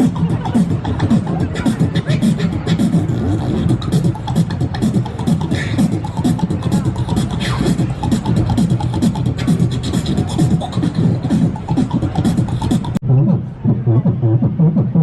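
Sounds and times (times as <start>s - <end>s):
percussive mouth clicks: 0.0s - 13.0s
low voice bending in pitch: 0.0s - 15.0s.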